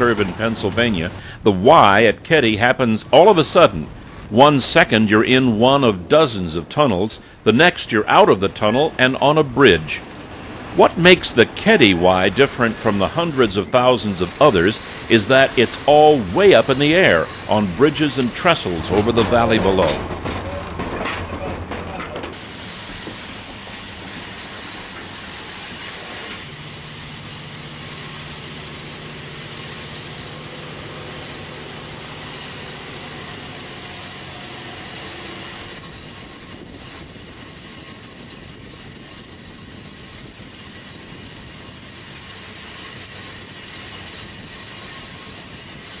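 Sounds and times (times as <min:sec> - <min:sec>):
train rolling on rails: 0:00.0 - 0:46.0.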